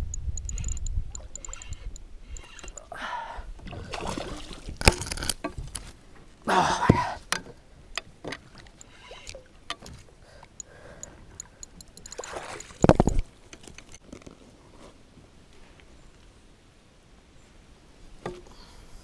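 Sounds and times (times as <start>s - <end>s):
gear clicking and knocking: 0.1s - 2.8s, 11.4s - 13.9s.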